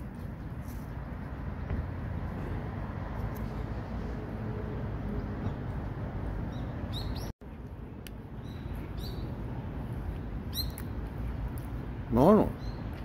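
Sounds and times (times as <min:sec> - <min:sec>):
low outdoor background noise: 0:00.0 - 0:13.0
small bird chirping: 0:06.5 - 0:07.3, 0:08.4 - 0:09.4, 0:10.5 - 0:11.0.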